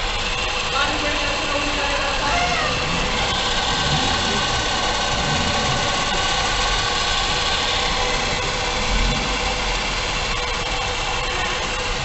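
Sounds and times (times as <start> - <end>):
car engine running: 0.0 - 12.0
constant whining noise: 0.0 - 12.0.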